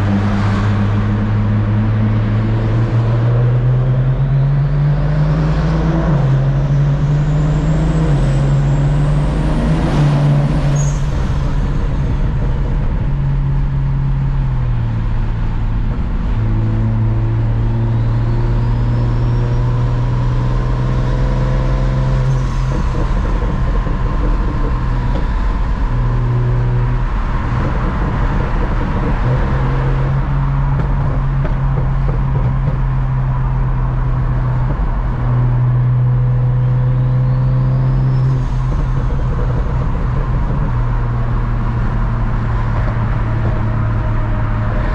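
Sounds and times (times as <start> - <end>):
car engine drone: 0.0 - 44.9
road noise: 0.0 - 44.9.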